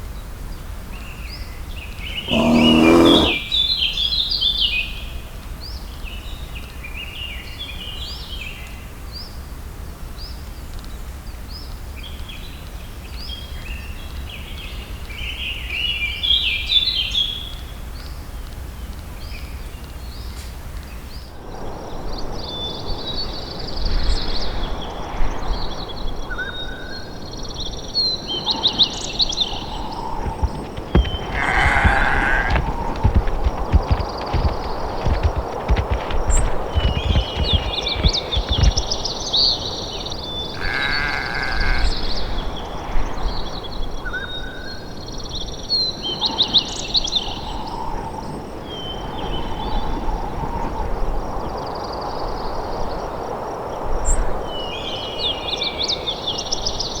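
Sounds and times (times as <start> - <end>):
songbirds singing: 0.5 - 4.8, 27.4 - 43.6.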